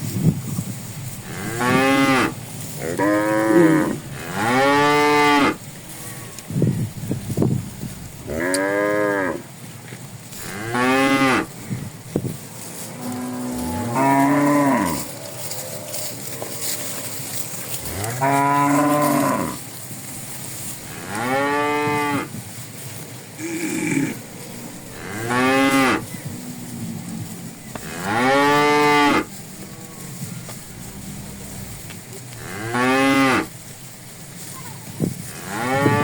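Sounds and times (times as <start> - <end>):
cattle mooing: 1.2 - 6.5, 7.6 - 9.4, 10.4 - 11.5, 13.0 - 15.2, 17.8 - 19.6, 20.8 - 22.3, 23.4 - 33.5, 35.3 - 36.0.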